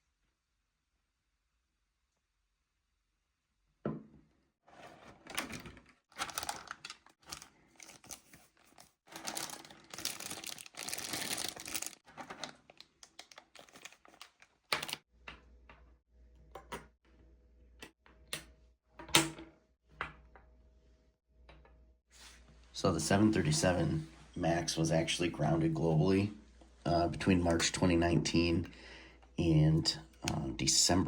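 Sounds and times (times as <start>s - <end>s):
packaging crinkling and tearing: 5.4s - 15.0s.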